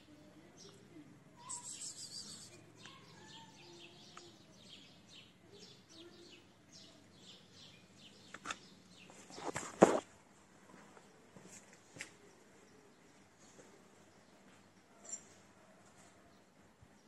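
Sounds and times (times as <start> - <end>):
small birds chirping: 0.0 - 10.1.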